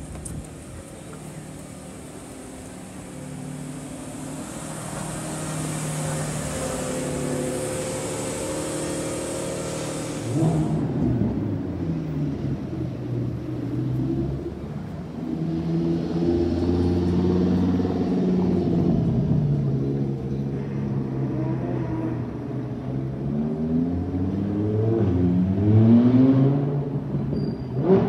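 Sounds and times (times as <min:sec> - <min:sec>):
choppy car engine revving: 0:01.1 - 0:20.4.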